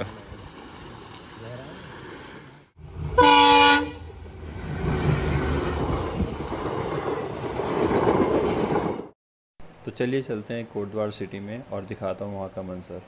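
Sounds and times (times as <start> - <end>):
train horn blast: 3.1 - 4.2
train wheels rumbling and clattering: 4.1 - 9.1.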